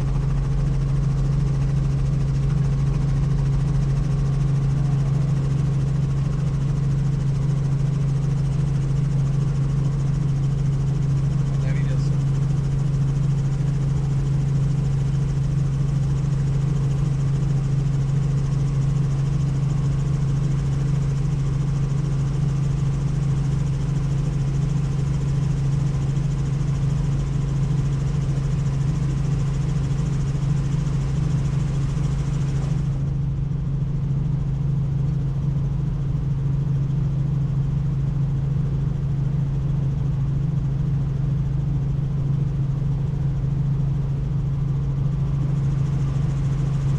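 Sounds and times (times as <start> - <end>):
helicopter drone: 0.0 - 46.9.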